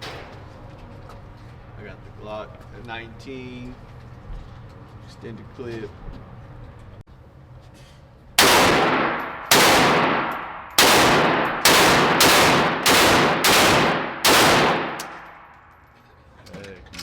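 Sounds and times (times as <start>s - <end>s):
pistol shots ringing out: 8.4s - 15.5s.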